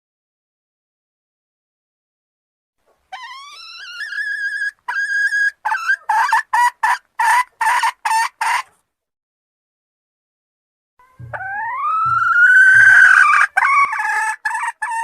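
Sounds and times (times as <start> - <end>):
hen calling and clucking: 2.9 - 8.8, 11.0 - 15.0.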